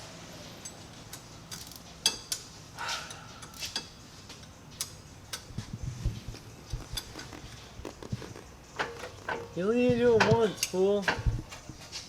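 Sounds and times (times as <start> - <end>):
wrenches clicking on bolts: 0.6 - 5.6, 8.8 - 11.6.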